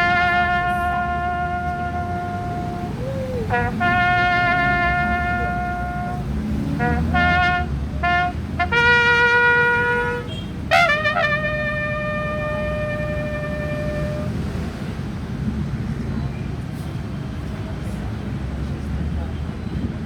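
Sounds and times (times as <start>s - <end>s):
solo brass instrument playing: 0.0s - 14.4s.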